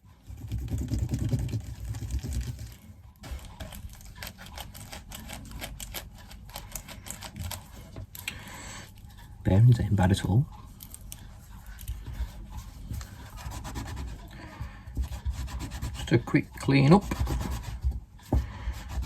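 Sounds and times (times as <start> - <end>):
low rubbing and handling noise: 8.9 - 19.0.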